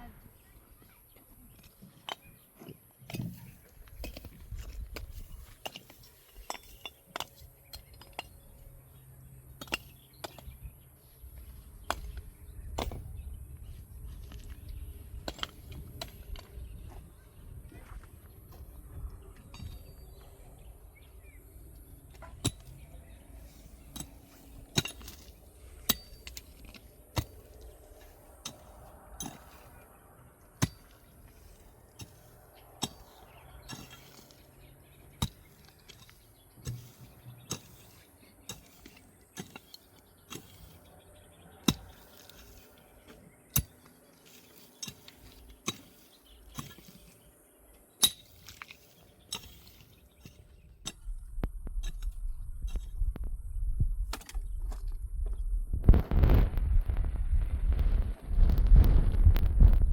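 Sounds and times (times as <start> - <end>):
low rumble: 50.8 - 59.9.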